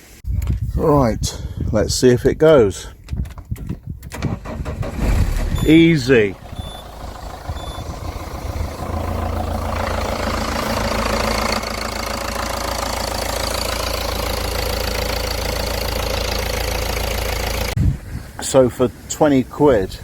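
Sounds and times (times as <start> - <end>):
van engine idling: 4.4 - 17.8.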